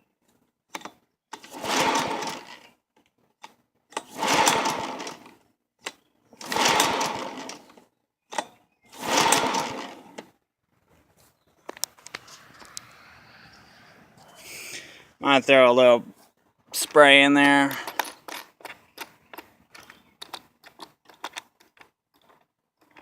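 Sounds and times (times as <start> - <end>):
mower recoil starter pulls: 0.7 - 2.7, 3.4 - 10.3
engine cranking: 0.7 - 2.8, 3.4 - 10.4, 17.5 - 23.0.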